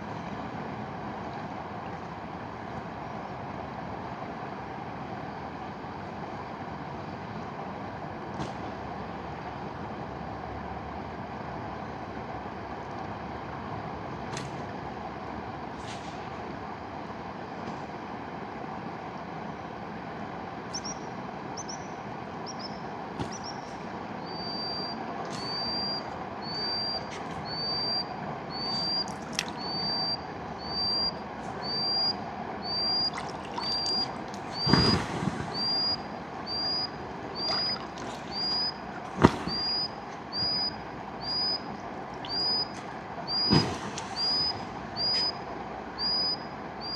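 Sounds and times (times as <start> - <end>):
bird whistling high note: 22.5 - 38.8, 39.5 - 45.4, 46.0 - 46.9.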